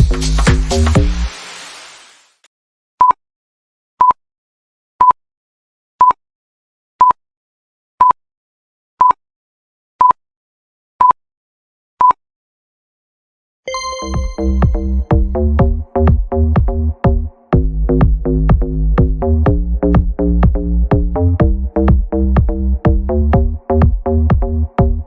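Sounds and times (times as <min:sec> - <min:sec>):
dance music: 0:00.0 - 0:02.2, 0:13.7 - 0:25.0.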